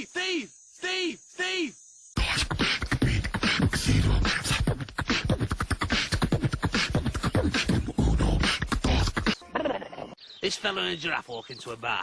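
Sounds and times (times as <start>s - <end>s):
beatbox mouth sounds: 2.2s - 9.4s.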